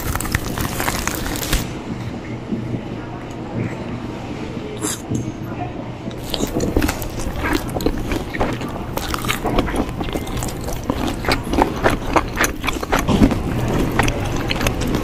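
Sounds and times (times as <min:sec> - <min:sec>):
person chewing with wet smacks: 0:00.0 - 0:01.6, 0:06.2 - 0:15.0
low background hum: 0:00.0 - 0:15.0.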